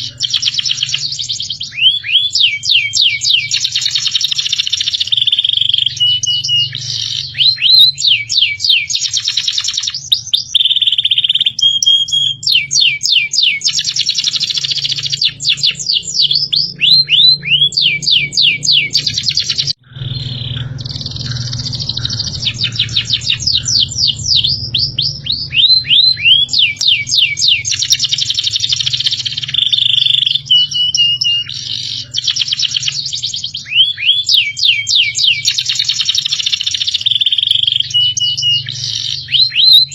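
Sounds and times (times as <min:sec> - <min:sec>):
recorded songbird whistling: 0:00.0 - 0:39.9
low steady hum: 0:14.4 - 0:33.6.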